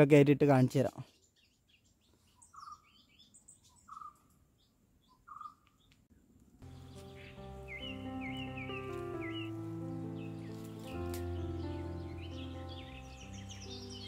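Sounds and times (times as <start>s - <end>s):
faint bird calls: 1.1s - 6.0s
background music with held tones: 6.6s - 14.0s.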